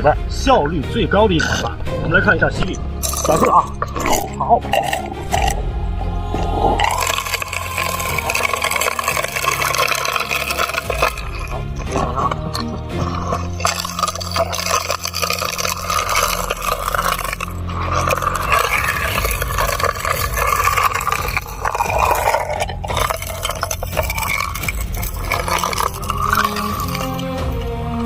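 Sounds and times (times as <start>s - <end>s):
water flowing: 0.0s - 28.0s
sand and gravel sucked through siphon: 6.3s - 27.2s.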